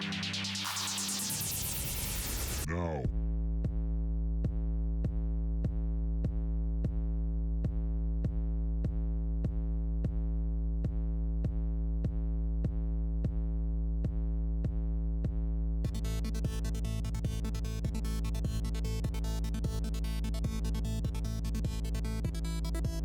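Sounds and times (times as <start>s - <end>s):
drum-machine beat: 0.0s - 2.7s, 15.9s - 23.0s.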